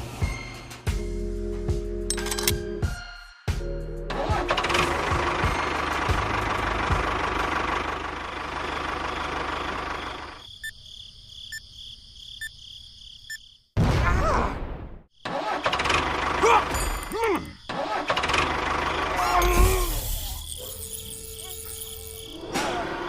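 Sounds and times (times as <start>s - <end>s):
engine running: 4.3s - 10.4s, 18.0s - 23.0s.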